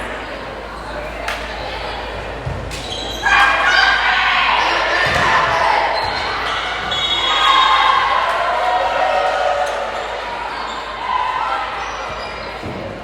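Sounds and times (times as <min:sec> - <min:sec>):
players shouting: 0:00.0 - 0:13.0
sneakers squeaking on hardwood: 0:02.3 - 0:03.6, 0:04.9 - 0:07.7
basketball bouncing on gym floor: 0:05.0 - 0:07.0.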